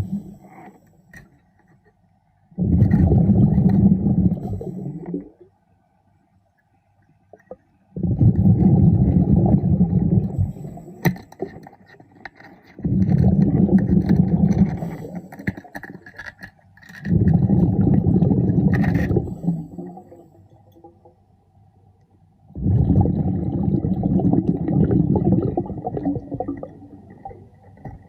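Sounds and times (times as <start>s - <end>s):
diver's exhaled bubbles underwater: 2.6s - 5.4s, 8.0s - 11.5s, 12.8s - 15.4s, 17.1s - 21.2s, 22.5s - 28.0s.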